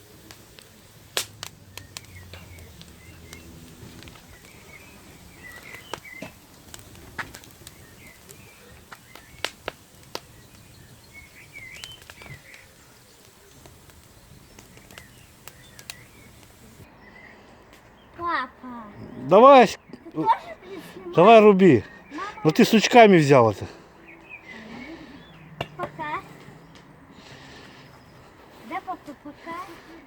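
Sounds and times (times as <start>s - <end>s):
sharp clicks and cracks: 0.0s - 16.9s
small birds chirping: 0.0s - 30.0s.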